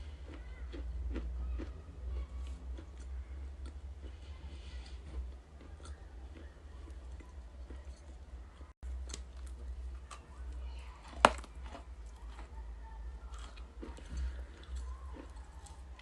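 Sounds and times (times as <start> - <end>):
clay cracking: 11.1 - 11.9.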